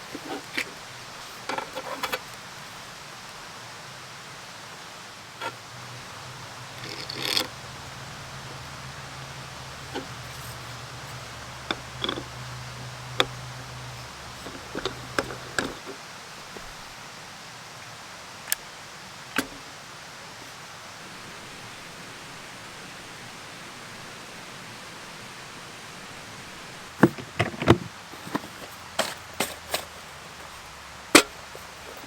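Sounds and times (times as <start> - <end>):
rain hissing: 0.0 - 32.0
sharp clicks and knocks: 9.7 - 16.0, 27.0 - 32.0.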